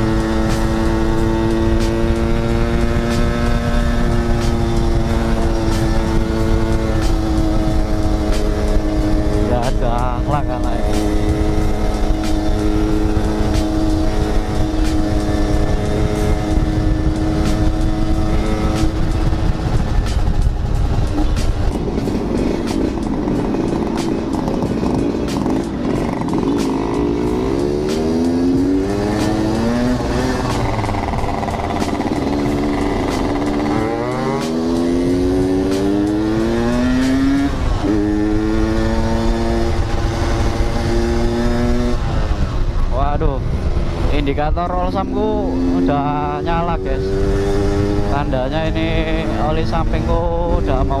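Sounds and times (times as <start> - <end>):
two-stroke motorbike engine: 0.0 - 42.9
wind rumble on microphone: 0.0 - 51.0.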